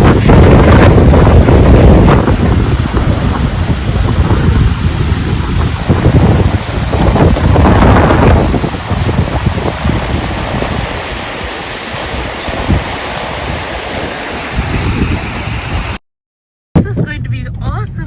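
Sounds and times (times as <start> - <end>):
river water rushing: 0.0 - 16.0
wind buffeting microphone: 0.0 - 16.0, 16.8 - 18.0.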